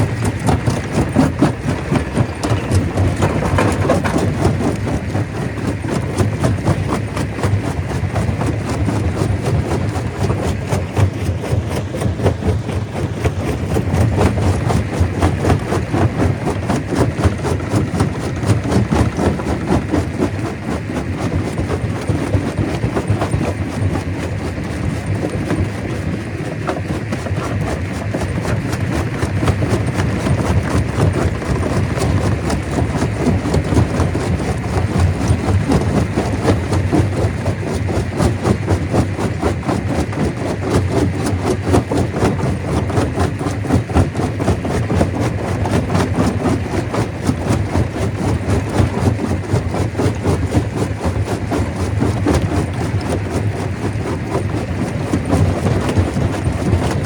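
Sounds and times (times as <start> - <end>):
rock clattering through machine: 0.0 - 6.1
stone crusher running: 0.0 - 57.0.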